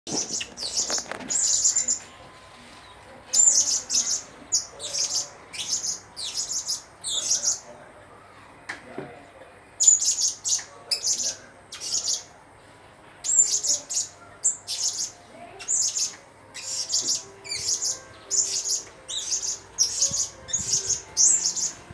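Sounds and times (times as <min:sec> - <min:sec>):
parrot chirping: 0:03.3 - 0:07.7, 0:09.8 - 0:12.3, 0:13.2 - 0:21.9.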